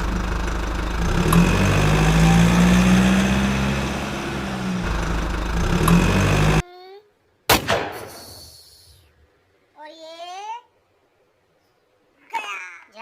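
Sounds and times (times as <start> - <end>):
engine drone revving: 0.0 - 6.6.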